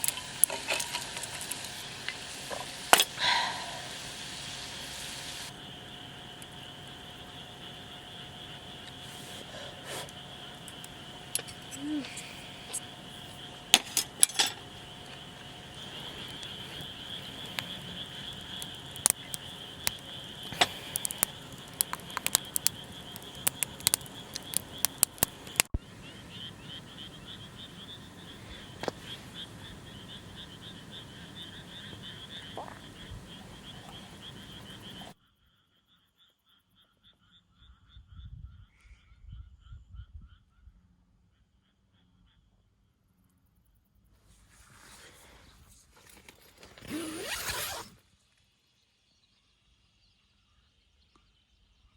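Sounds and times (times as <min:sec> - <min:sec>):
sharp clicks and cracks: 0:00.0 - 0:03.3, 0:06.3 - 0:25.8
frogs trilling: 0:00.0 - 0:43.6, 0:46.8 - 0:47.8.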